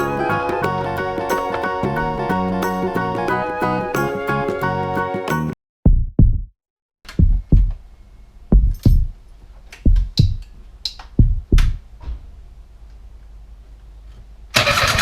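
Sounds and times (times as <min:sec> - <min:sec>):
heartbeat thumps: 0:05.8 - 0:06.5, 0:07.1 - 0:07.8, 0:08.5 - 0:09.2, 0:09.8 - 0:10.5, 0:11.1 - 0:11.9.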